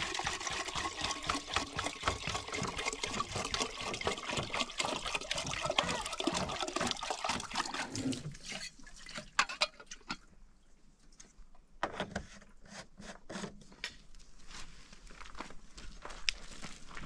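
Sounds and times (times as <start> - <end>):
water splashing and sloshing: 0.0 - 11.5.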